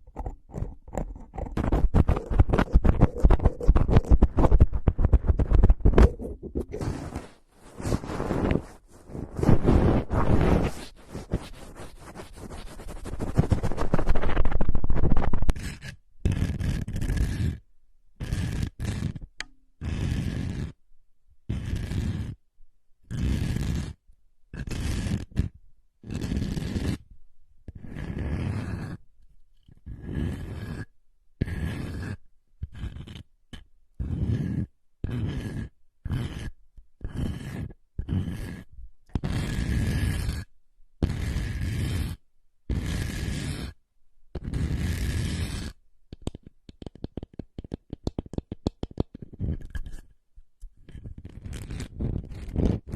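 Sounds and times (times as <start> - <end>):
scratching and scraping: 0.0 - 17.6, 18.2 - 20.8, 21.5 - 22.4, 23.1 - 24.0, 24.6 - 27.0, 27.7 - 29.0, 29.6 - 43.8, 44.4 - 50.2, 50.8 - 52.9
scratchy rustling bursts: 1.6 - 15.5.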